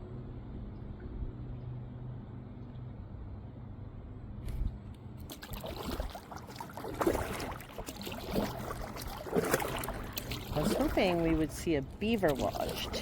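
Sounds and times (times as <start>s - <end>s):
faint low hum: 0.0s - 13.0s
kayak paddle splashing: 5.2s - 13.0s
water dripping against hull: 5.2s - 13.0s.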